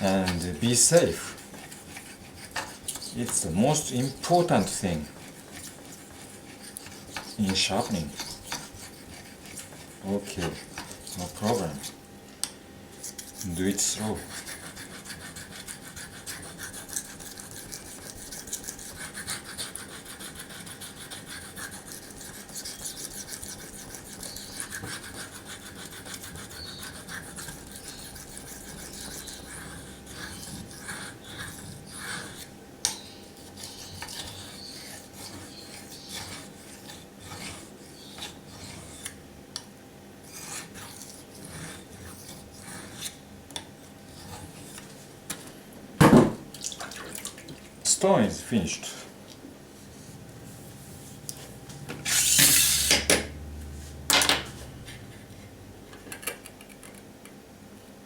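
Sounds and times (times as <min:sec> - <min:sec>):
knife scraping on whetstone: 0:00.0 - 0:12.0, 0:13.0 - 0:39.2, 0:40.2 - 0:43.2, 0:44.1 - 0:44.9, 0:52.0 - 0:53.1.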